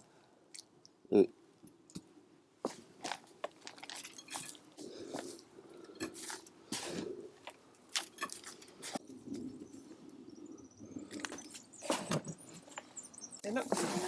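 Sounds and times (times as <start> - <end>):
hands digging through soil: 2.7 - 9.4, 13.4 - 14.0.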